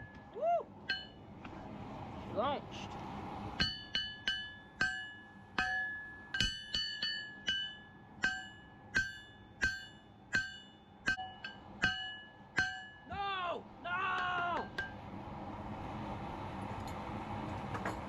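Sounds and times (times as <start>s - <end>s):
hammer striking steel on anvil: 0.0s - 1.2s, 3.6s - 13.4s, 14.2s - 15.0s.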